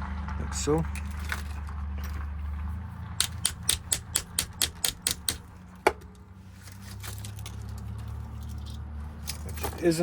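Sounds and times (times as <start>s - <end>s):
lock cylinder clicking: 3.2s - 5.5s.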